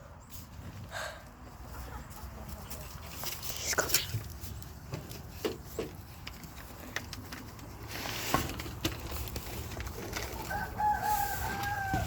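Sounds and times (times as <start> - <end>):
rooster crowing: 10.4 - 12.0.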